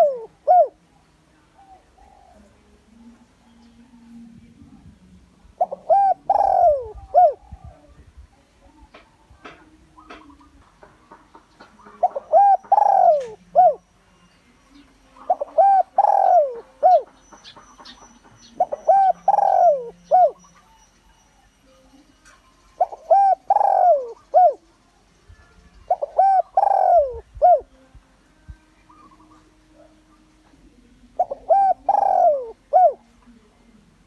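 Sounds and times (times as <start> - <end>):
dove cooing: 0.0 - 4.2, 5.5 - 8.0, 8.8 - 13.9, 15.2 - 20.7, 22.8 - 24.6, 25.9 - 27.7, 28.8 - 33.1.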